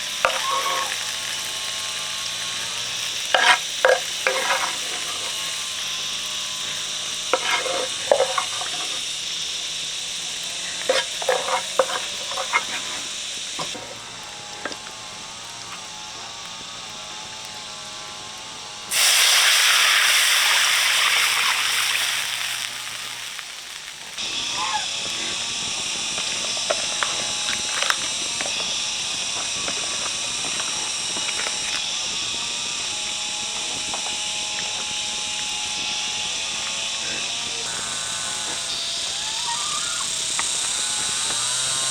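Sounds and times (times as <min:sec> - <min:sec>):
utensil scraping a pan: 0:00.0 - 0:14.9
food sizzling in a pan: 0:00.0 - 0:41.9.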